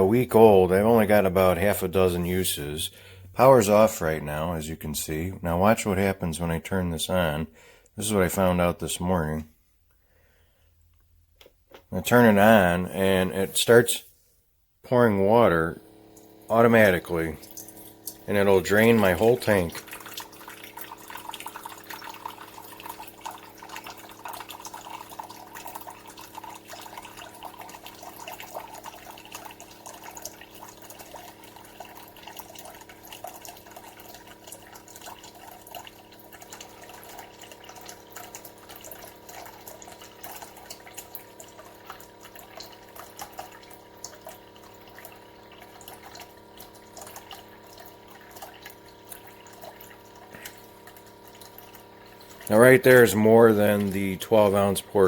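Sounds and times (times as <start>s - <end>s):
water pouring into a cup: 15.2s - 55.0s.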